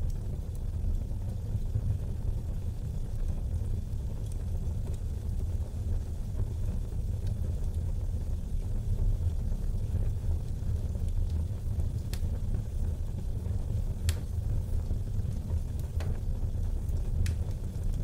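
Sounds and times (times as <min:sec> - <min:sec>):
fire crackles: 0:00.0 - 0:18.0
fire rumbling in fireplace: 0:00.0 - 0:18.0.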